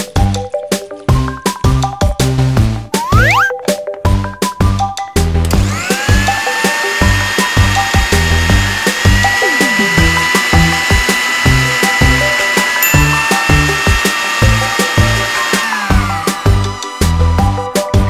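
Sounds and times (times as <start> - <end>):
background music with steady beat: 0.0 - 18.0
toy blender motor whirring: 5.5 - 18.0.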